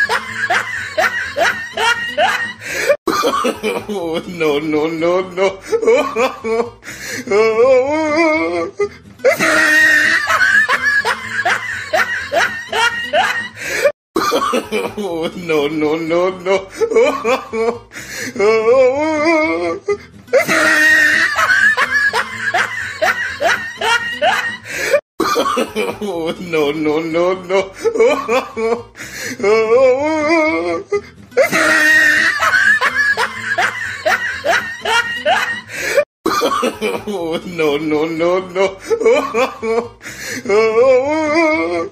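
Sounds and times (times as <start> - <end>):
loud breathy laughter: 0.0 - 4.0, 8.8 - 15.1, 19.8 - 26.1, 30.9 - 37.1
wavering voice: 7.3 - 9.7, 18.4 - 20.7.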